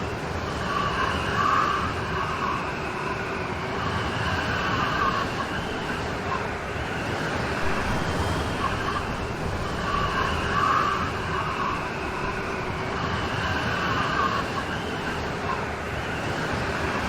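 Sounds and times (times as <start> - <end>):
heavy rain hissing: 7.6 - 13.0
high whine: 7.6 - 13.2.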